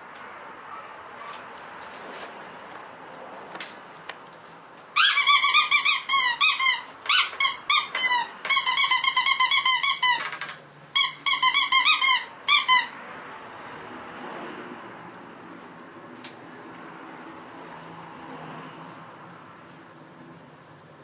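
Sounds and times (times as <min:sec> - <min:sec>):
puppy squealing: 0:05.0 - 0:13.0.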